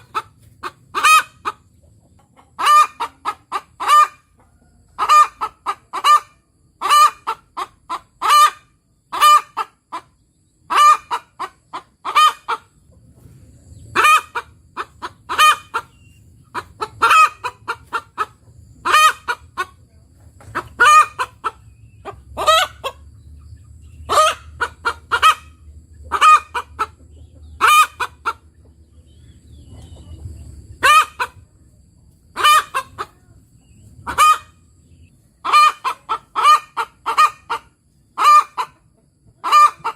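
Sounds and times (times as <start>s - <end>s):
faint low rumble: 25.5s - 35.5s.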